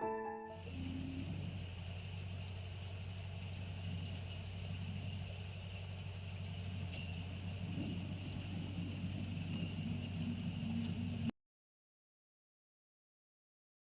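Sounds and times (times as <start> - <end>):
low mechanical hum: 0.0 - 11.3.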